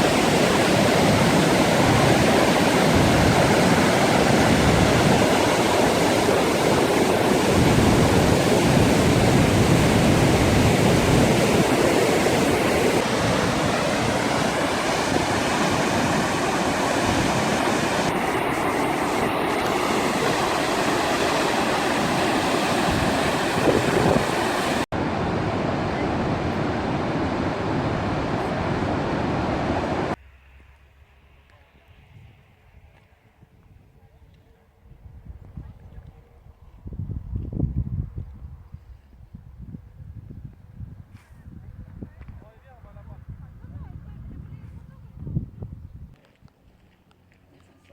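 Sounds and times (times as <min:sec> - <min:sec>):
rushing water: 0:00.0 - 0:30.2.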